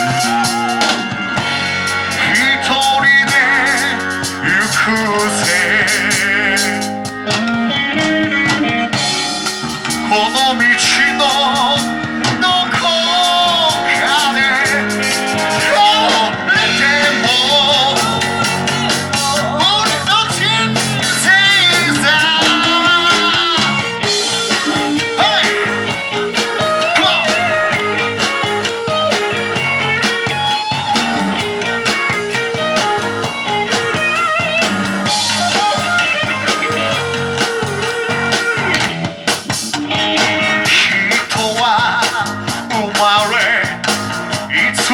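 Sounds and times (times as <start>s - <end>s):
person singing: 0.0s - 34.3s, 40.1s - 44.9s
rock band playing live: 0.0s - 44.9s.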